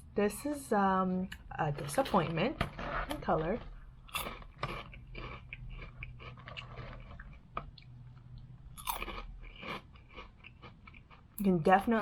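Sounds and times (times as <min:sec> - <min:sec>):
person chewing crunchy chips: 0:04.0 - 0:11.9.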